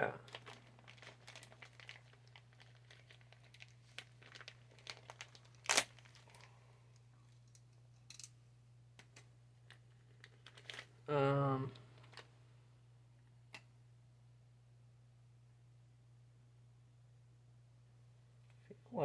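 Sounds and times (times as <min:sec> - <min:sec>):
handling clicks and crinkling: 0:00.2 - 0:08.4, 0:09.0 - 0:11.0, 0:11.8 - 0:12.4.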